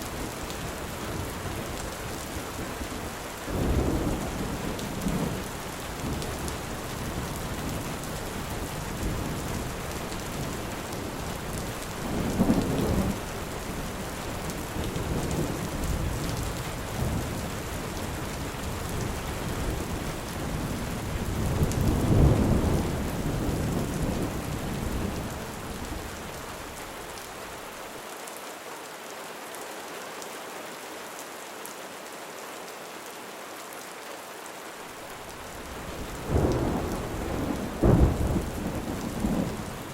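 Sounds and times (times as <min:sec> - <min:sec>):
heavy rain hissing: 0:00.0 - 0:31.4, 0:33.2 - 0:39.9
thunder rumbling: 0:03.5 - 0:18.2, 0:18.8 - 0:26.3, 0:35.2 - 0:39.9.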